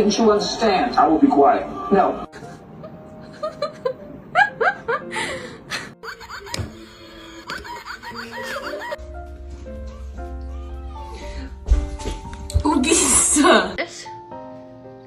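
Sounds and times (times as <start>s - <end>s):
person snickering and laughing: 3.3s - 9.0s
music with steady bass: 9.0s - 13.6s.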